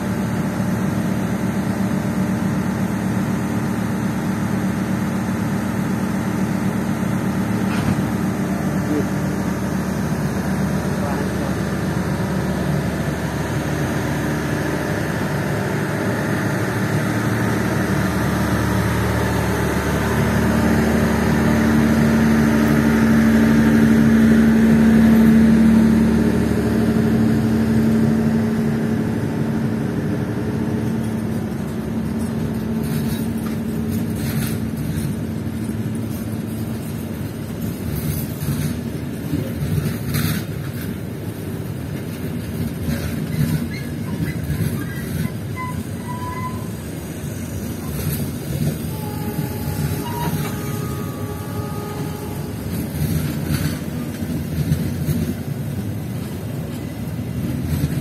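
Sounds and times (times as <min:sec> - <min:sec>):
train carriages rumbling past: 0:00.0 - 0:58.0
wheels clicking over rail joints: 0:07.6 - 0:09.1, 0:30.7 - 0:58.0.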